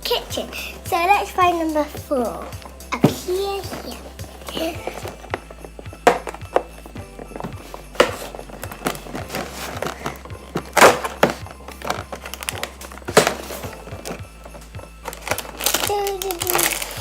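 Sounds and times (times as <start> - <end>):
cardboard ripping: 7.4 - 17.0
packaging crinkling and tearing: 8.0 - 17.0.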